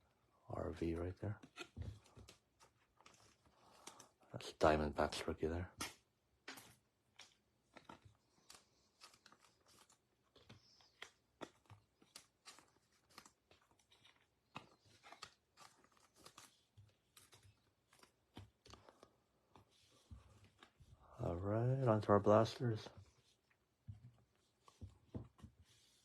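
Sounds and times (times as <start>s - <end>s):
cards and packaging crinkling: 1.0s - 23.6s.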